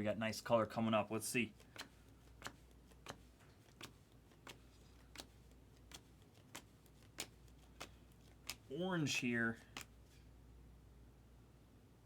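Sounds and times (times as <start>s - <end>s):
cards flipping with clicks: 1.5s - 8.7s, 9.6s - 10.0s.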